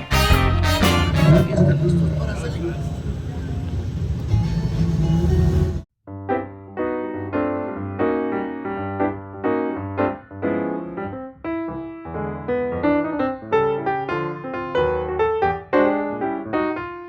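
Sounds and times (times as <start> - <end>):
gentle piano melody: 6.1 - 17.0.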